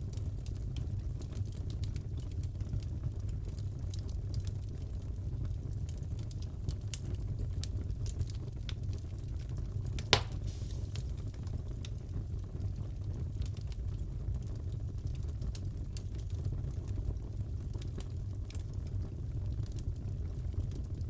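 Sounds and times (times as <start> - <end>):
fireplace fire crackling: 0.0 - 21.0
fire pops: 10.0 - 12.0.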